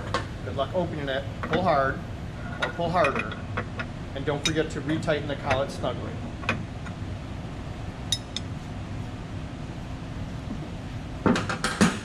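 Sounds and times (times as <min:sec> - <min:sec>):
steady low hum: 0:00.0 - 0:12.0
light metallic clinks: 0:08.1 - 0:08.5.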